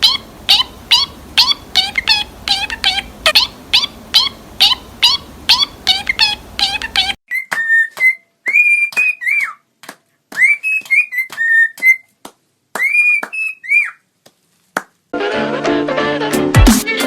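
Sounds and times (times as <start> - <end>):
parrot whistling a tune: 0.0 - 9.6, 10.4 - 12.1, 12.8 - 14.0.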